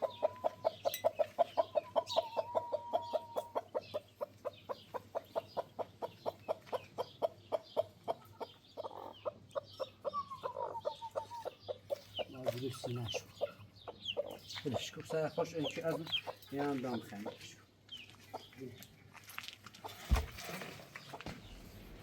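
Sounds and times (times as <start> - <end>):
chicken clucking rapidly: 0.0 - 17.5, 18.2 - 18.6.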